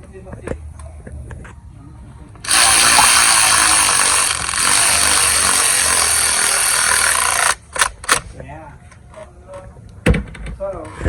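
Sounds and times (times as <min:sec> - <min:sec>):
handheld power tool running: 0:02.4 - 0:08.2.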